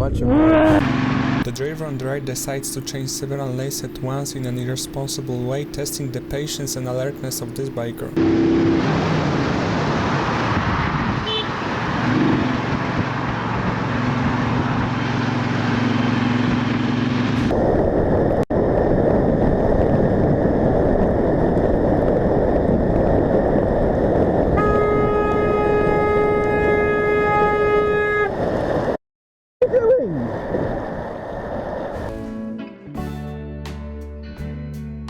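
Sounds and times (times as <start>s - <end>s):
wind and road noise rushing: 0.0s - 29.0s, 30.2s - 32.5s.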